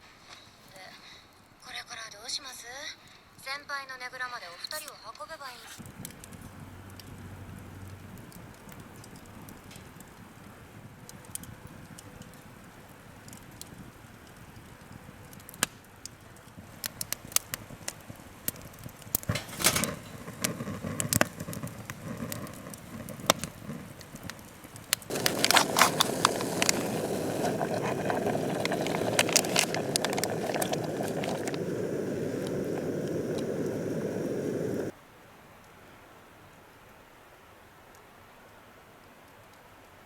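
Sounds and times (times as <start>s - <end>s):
campfire crackling and popping: 5.8s - 35.0s
steady hiss: 19.2s - 35.0s.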